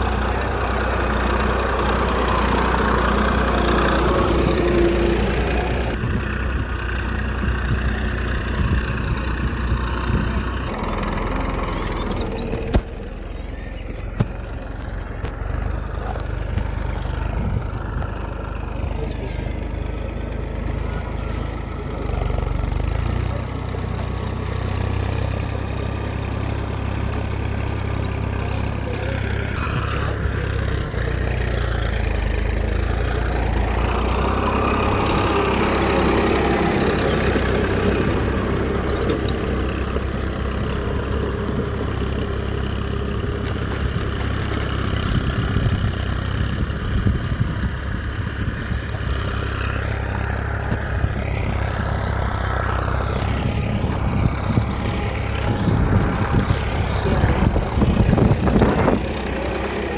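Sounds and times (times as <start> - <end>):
tractor engine idling: 0.0 - 59.9.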